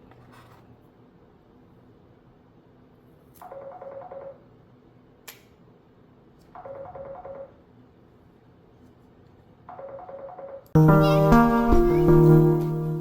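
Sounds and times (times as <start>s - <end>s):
electronic telephone ringtone: 6.6s - 7.5s, 9.7s - 10.6s.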